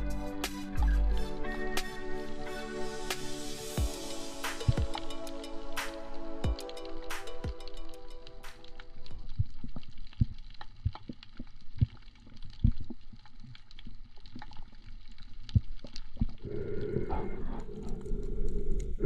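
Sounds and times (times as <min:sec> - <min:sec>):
music: 0:00.0 - 0:09.3
faint underwater hiss: 0:01.8 - 0:06.4
underwater clicks and knocks: 0:09.3 - 0:14.6.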